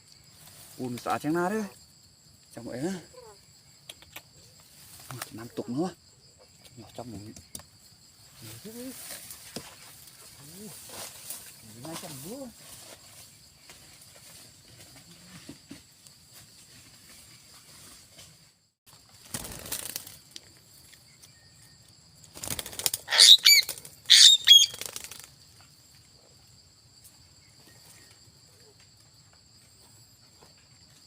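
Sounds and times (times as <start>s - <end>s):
parrot wings flapping: 19.1s - 20.3s, 22.3s - 25.4s
parrot harsh cries: 23.1s - 24.8s.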